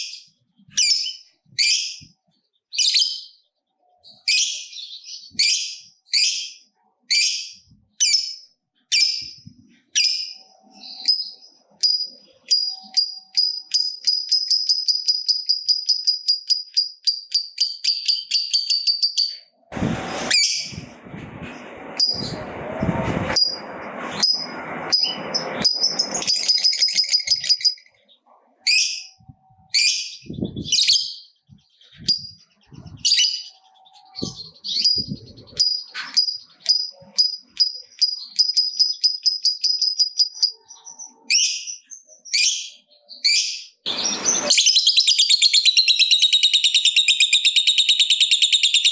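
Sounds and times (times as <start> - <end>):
lovebird chattering trill: 10.0 - 19.4, 25.0 - 27.9, 43.3 - 48.9
scratchy noise: 19.7 - 26.7.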